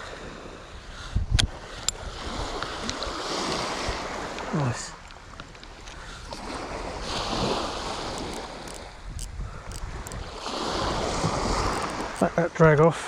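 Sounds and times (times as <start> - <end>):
wind rumbling on microphone: 0.0 - 4.5
small waves washing on beach: 0.0 - 9.0, 9.8 - 12.3.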